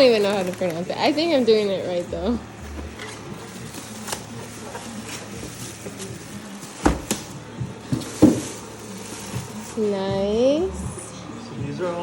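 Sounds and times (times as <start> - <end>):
packaging rustling and clicks: 0.0 - 2.0, 2.6 - 9.8.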